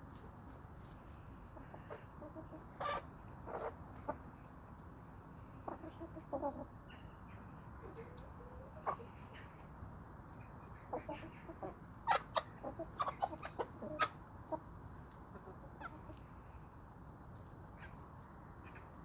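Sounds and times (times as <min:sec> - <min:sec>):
low background noise: 0:00.0 - 0:19.0
chickens clucking: 0:01.0 - 0:04.4, 0:05.4 - 0:07.0, 0:07.8 - 0:09.7, 0:10.4 - 0:16.3.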